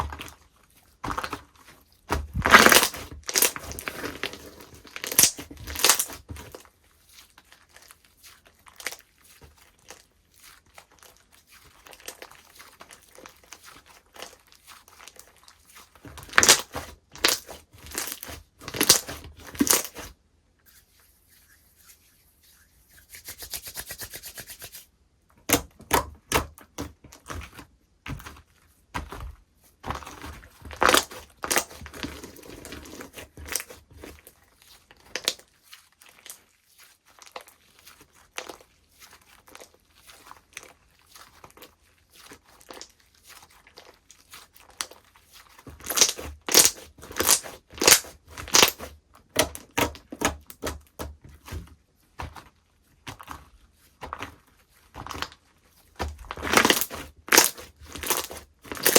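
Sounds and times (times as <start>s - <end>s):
slime squished by hand: 0.0s - 20.2s, 25.4s - 58.9s.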